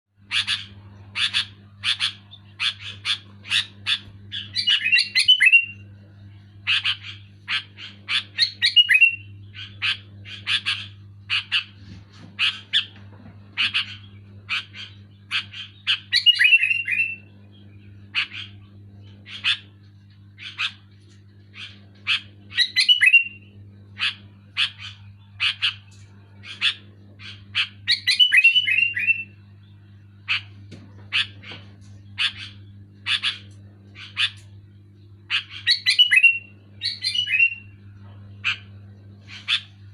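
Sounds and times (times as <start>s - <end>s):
bulbul calling: 0.2s - 5.8s, 6.6s - 11.7s, 13.6s - 19.7s, 21.5s - 29.4s, 35.3s - 37.8s
steady low hum: 0.2s - 39.9s.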